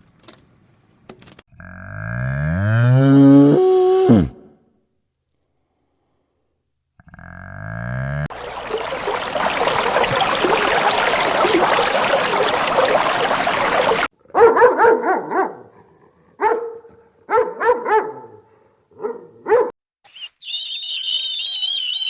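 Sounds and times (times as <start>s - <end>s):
dog barking: 14.3s - 19.8s.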